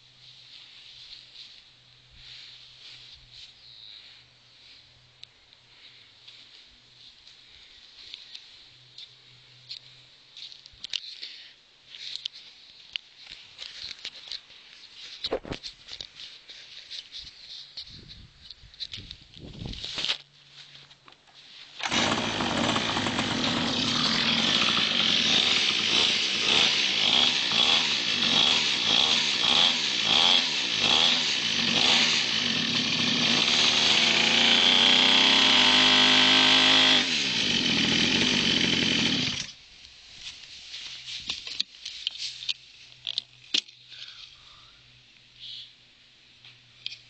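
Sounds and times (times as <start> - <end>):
small two-stroke engine revving: 21.8 - 39.6.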